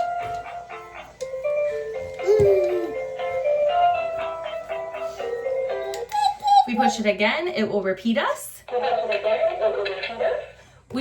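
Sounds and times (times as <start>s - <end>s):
electronic toy melody: 0.0s - 6.9s.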